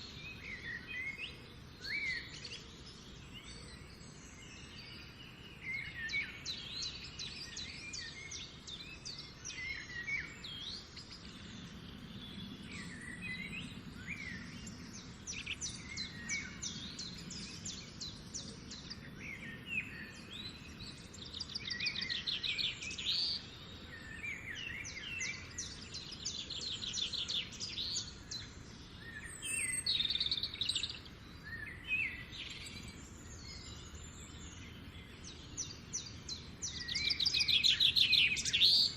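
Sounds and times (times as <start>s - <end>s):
birds singing and trilling: 0.0s - 38.9s.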